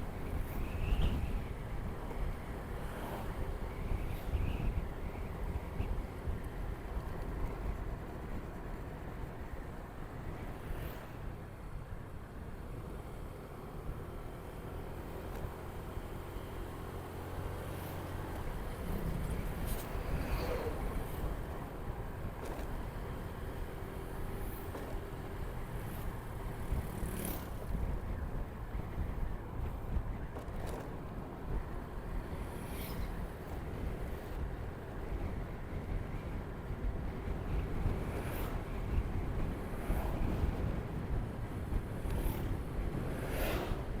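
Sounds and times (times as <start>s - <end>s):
wind on microphone: 0.0s - 8.6s, 18.3s - 44.0s
road noise: 0.0s - 44.0s.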